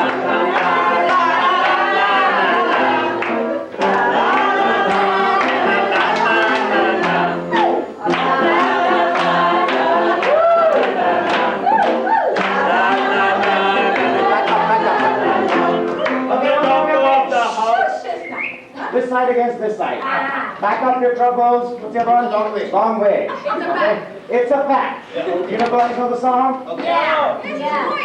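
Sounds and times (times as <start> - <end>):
group singing in unison: 0.0 - 18.8.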